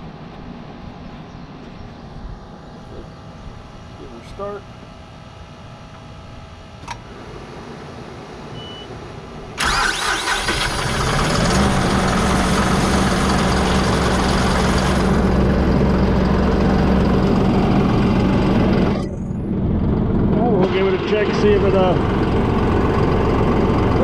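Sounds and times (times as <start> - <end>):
diesel tractor engine starting: 9.5 - 24.0.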